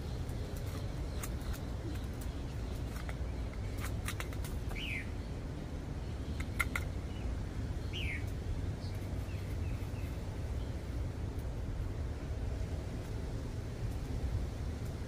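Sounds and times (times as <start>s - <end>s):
bird calling with falling chirps: 0.0s - 5.3s, 7.8s - 10.2s
sharp clicks: 6.4s - 7.0s.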